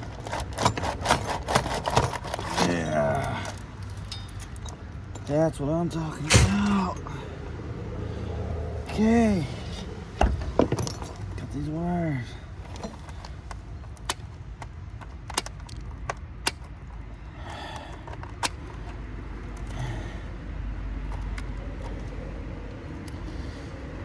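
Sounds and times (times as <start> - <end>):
steady low rumble: 2.3 - 24.0
metallic clicks of copper wire: 3.4 - 5.3.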